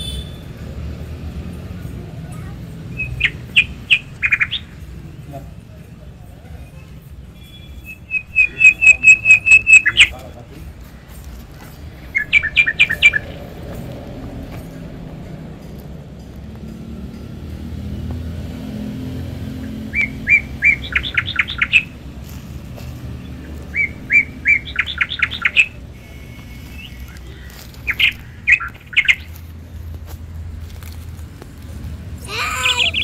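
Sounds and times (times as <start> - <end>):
bird singing: 2.9 - 4.9, 6.6 - 10.4, 12.0 - 13.6, 19.4 - 22.1, 23.2 - 29.4, 32.3 - 33.0.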